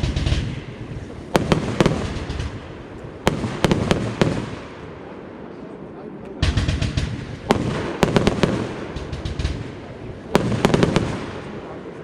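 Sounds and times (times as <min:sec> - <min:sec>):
firework cake bangs: 0:06.4 - 0:11.7.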